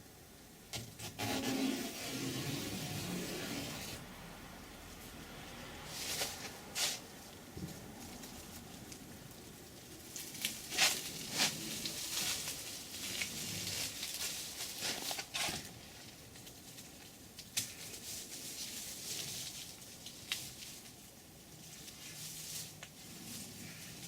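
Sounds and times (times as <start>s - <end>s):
masking tape peeling: 0.8s - 4.0s, 10.2s - 15.8s.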